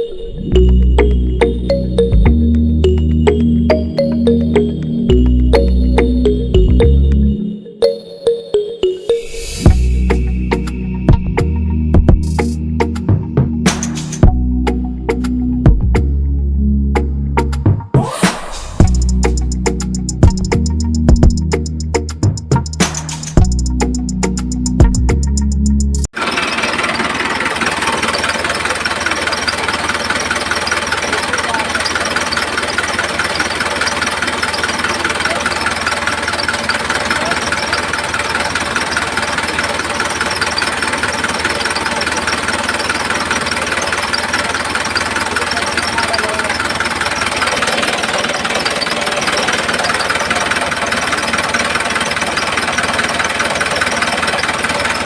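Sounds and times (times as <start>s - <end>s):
small motor with fast rattle: 26.2s - 55.0s.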